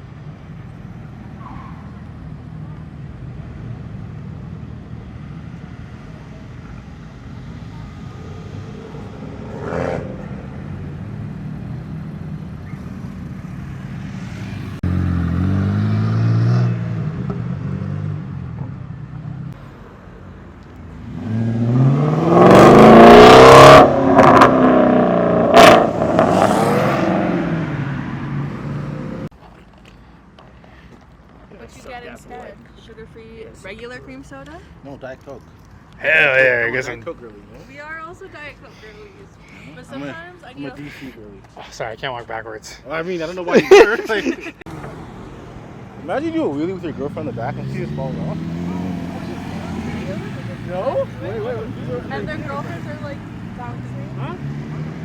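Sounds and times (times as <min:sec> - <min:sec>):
vehicle engine revving: 0:07.8 - 0:19.6, 0:21.0 - 0:29.3, 0:44.7 - 0:55.0.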